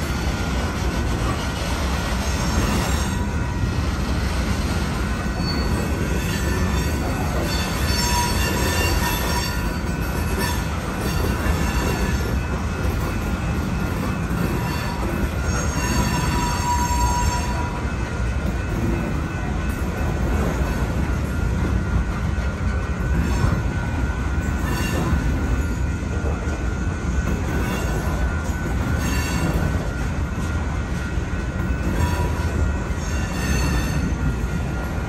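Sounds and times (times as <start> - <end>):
train wheels rumbling on rail: 0.0 - 35.0
high-pitched wheel squeals: 5.0 - 12.6, 14.1 - 18.0, 23.1 - 26.0, 27.5 - 30.0, 31.6 - 34.3.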